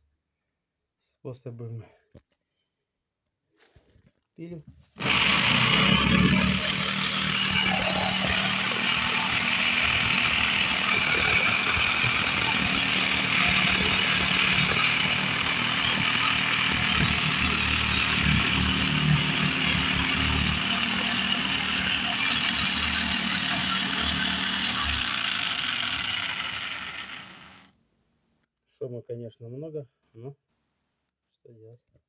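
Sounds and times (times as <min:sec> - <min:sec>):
electric power saw cutting: 0:05.0 - 0:27.7.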